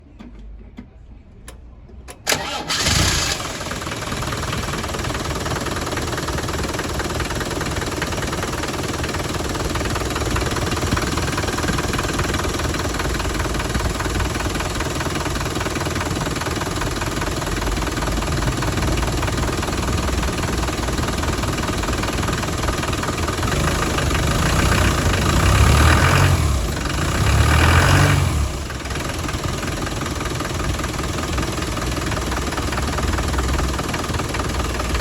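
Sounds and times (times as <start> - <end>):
engine starting and idling: 2.1 - 35.0.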